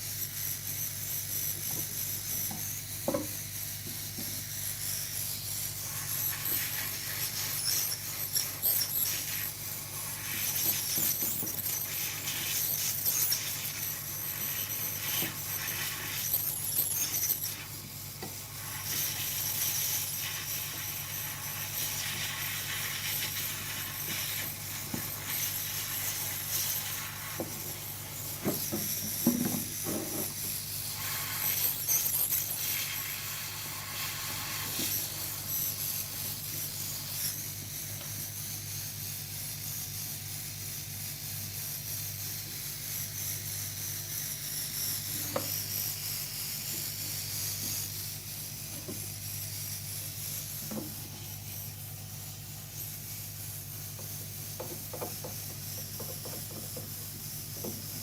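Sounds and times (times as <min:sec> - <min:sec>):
high hiss: 0:02.4 - 0:58.0.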